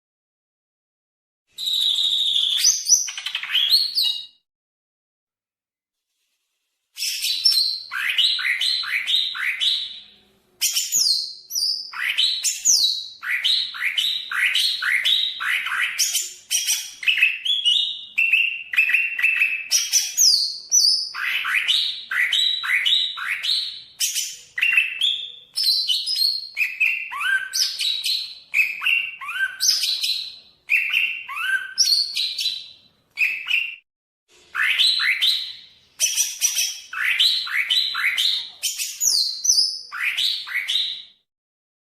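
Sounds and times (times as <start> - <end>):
bird singing: 7.0 - 33.8, 34.5 - 41.2.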